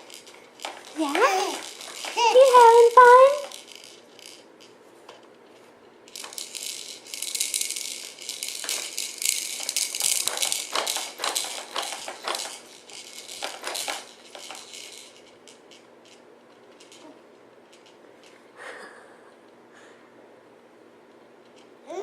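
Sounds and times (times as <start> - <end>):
plastic baby toy rattling: 0.0 - 4.8, 6.1 - 18.4.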